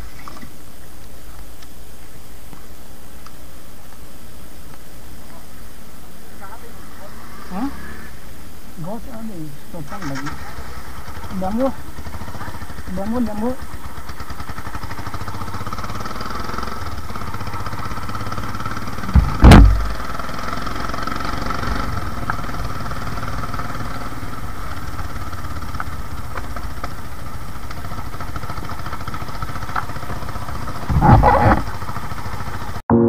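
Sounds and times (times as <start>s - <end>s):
motorcycle engine running: 6.1s - 33.0s
loud engine bursts: 10.0s - 33.0s.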